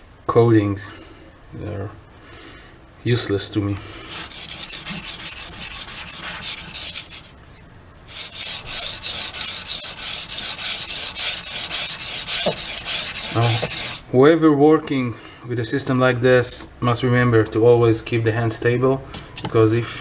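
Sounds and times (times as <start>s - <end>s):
knife scraping on sandpaper: 4.0s - 14.0s.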